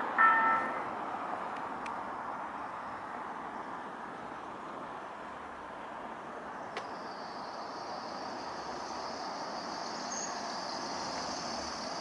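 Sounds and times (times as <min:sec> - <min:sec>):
electric train rolling rumble: 0:00.0 - 0:12.0
high hiss: 0:06.8 - 0:12.0.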